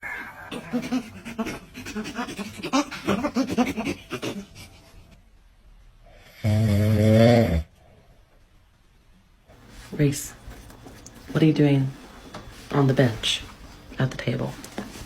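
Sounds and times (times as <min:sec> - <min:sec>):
dog panting: 0:00.3 - 0:05.1.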